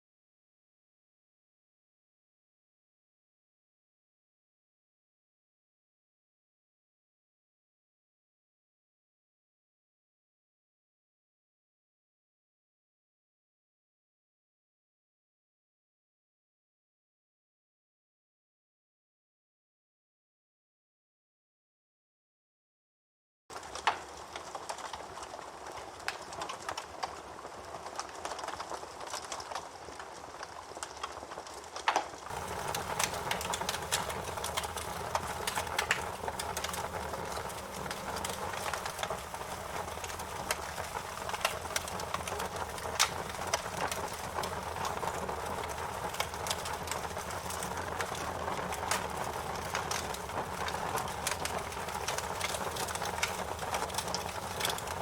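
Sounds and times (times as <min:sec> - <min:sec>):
campfire crackling and popping: 0:23.5 - 0:55.0
fire hissing: 0:32.3 - 0:55.0.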